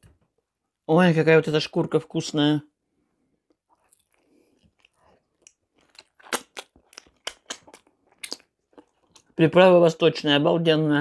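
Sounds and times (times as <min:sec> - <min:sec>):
crunchy chewing: 0:03.7 - 0:09.4.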